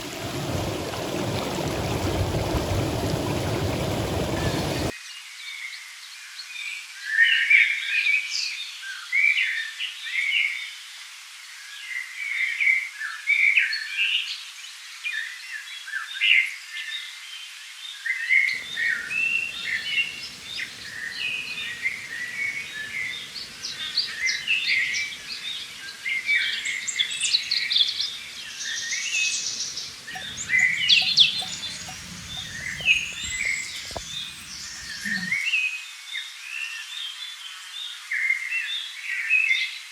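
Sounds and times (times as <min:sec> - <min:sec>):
songbirds singing and chirping: 0:18.6 - 0:35.4.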